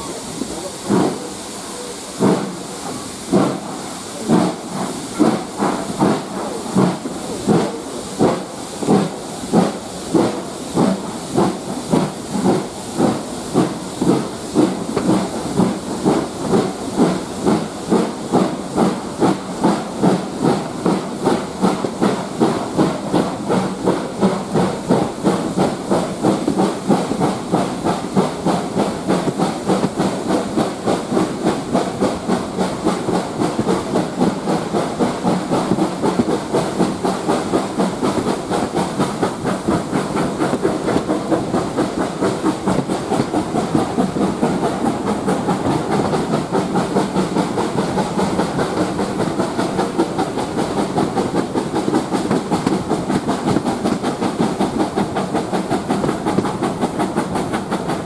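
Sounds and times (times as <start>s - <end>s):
steam hiss: 0.0s - 58.0s
steam locomotive exhaust beats: 0.0s - 58.0s.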